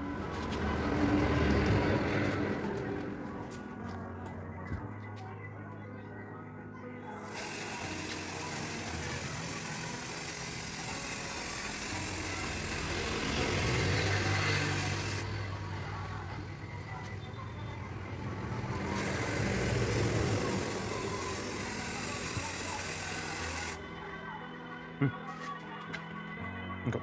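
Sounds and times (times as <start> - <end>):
paint spray gun hissing: 7.2 - 15.3, 18.8 - 23.8.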